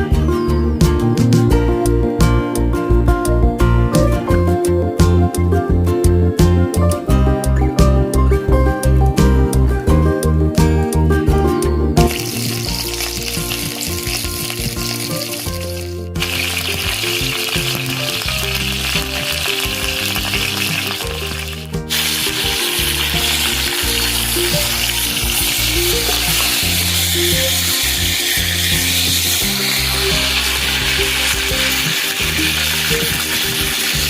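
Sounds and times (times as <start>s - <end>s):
background music: 0.0s - 34.0s
meat sizzling in a pot: 12.1s - 34.0s.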